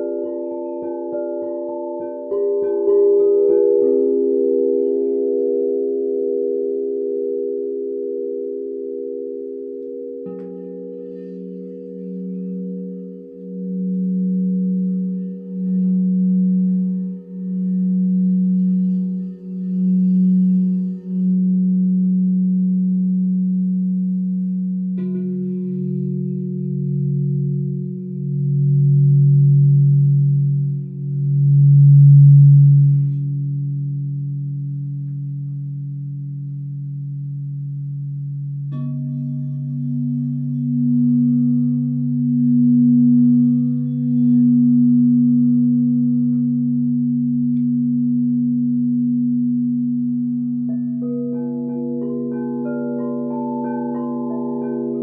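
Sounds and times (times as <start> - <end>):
singing bowl struck: 0.0 - 21.6, 38.7 - 55.0
crystal singing bowls ringing: 0.0 - 55.0.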